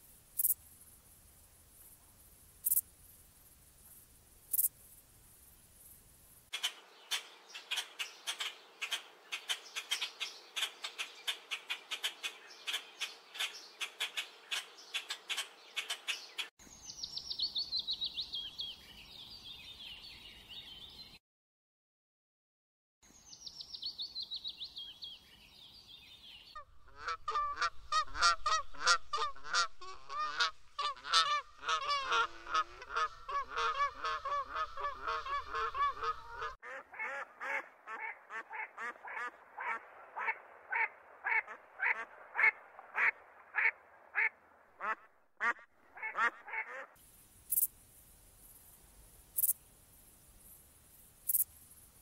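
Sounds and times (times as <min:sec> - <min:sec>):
bush crickets buzzing: 0:00.0 - 0:06.5, 0:47.0 - 0:52.0
swan honking: 0:26.6 - 0:47.0.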